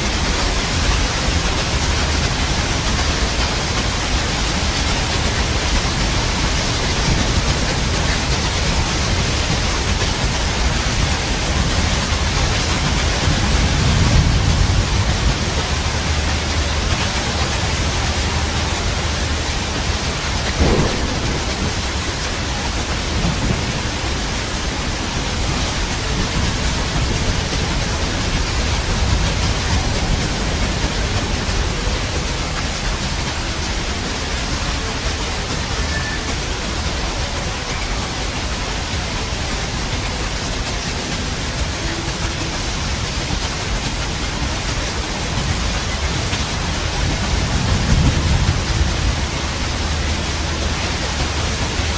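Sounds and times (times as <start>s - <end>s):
heavy rain: 0.0s - 51.9s
thunder rumble: 0.0s - 51.9s
sharp thunder crack: 20.4s - 24.6s.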